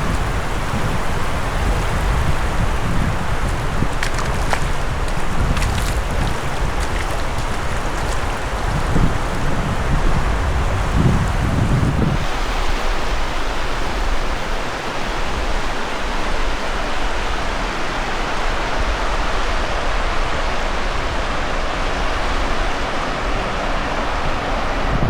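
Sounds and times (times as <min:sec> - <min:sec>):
waves washing onto beach: 0:00.0 - 0:25.0.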